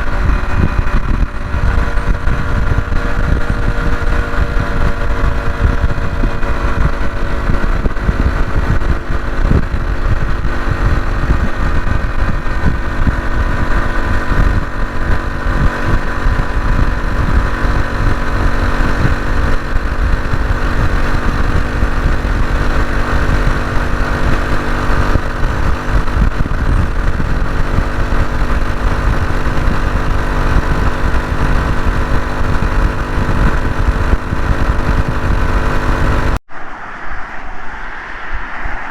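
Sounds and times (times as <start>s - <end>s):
motorcycle engine running: 0.0s - 36.5s
wind buffeting microphone: 0.0s - 38.9s.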